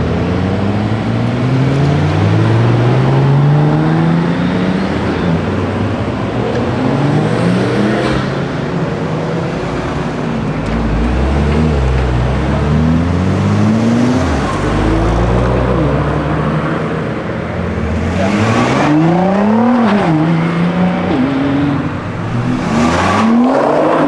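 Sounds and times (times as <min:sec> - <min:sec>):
car engines accelerating: 0:00.0 - 0:24.0
deep exhaust rumble: 0:10.4 - 0:16.6, 0:21.7 - 0:24.0.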